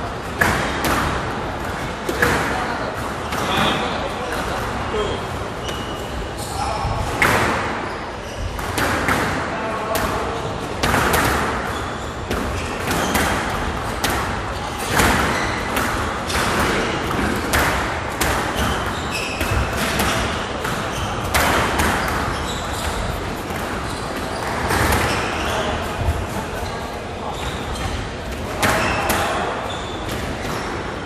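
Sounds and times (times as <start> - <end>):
squash ball hitting walls: 0.1 - 4.4, 6.9 - 26.4, 27.4 - 31.0
shoe squeaks: 5.0 - 7.0, 7.6 - 8.8, 11.4 - 13.7, 14.5 - 16.4, 18.4 - 30.8
rackets striking ball: 12.3 - 25.2.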